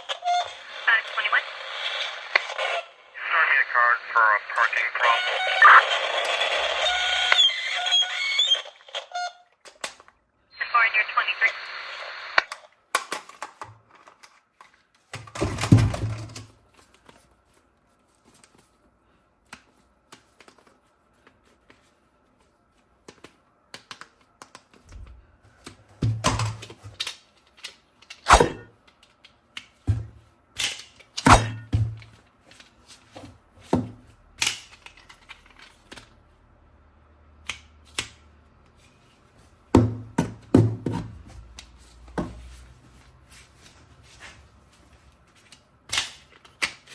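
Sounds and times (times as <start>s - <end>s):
toy guns clicking and knocking: 12.5s - 14.4s.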